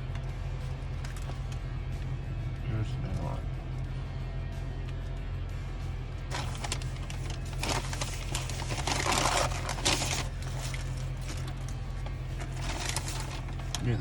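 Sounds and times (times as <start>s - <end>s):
steady low hum: 0.0s - 14.0s
paper wrapper crinkling: 6.3s - 13.8s.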